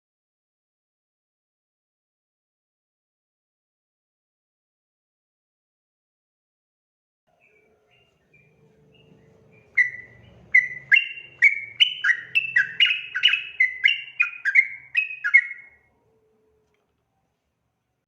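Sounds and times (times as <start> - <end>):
bulbul singing bubbly chirps: 9.8 - 15.8.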